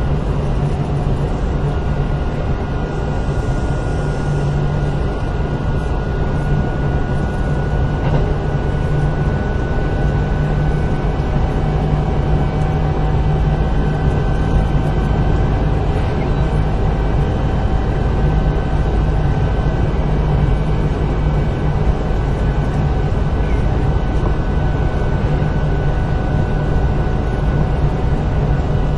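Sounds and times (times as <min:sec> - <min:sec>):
train wheels rumbling on rail: 0:06.5 - 0:28.9.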